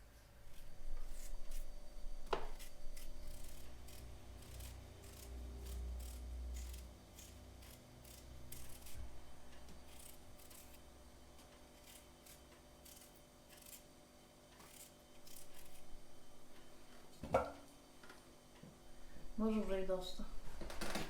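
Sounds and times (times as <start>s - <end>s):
faint snipping strokes: 11.4s - 13.9s, 14.6s - 15.8s.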